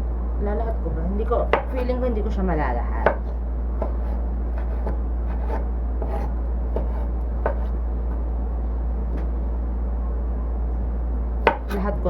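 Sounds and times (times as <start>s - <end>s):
steady low hum: 0.0s - 12.0s
knife chopping on cutting board: 1.5s - 1.9s, 3.0s - 7.7s, 11.4s - 11.8s.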